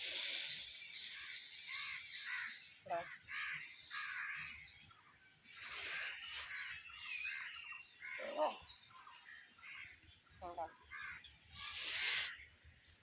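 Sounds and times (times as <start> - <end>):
steady high hiss: 11.4 - 13.0.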